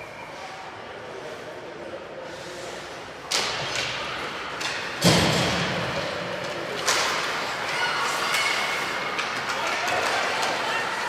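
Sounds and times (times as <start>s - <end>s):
sharp knocks echoing in rink: 3.3s - 11.0s.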